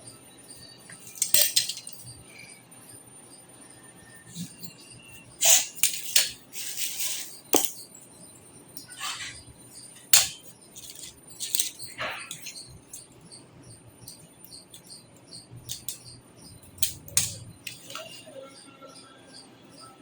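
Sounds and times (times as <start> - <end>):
clicks and taps of computer parts: 14.1 - 16.1, 16.7 - 18.2.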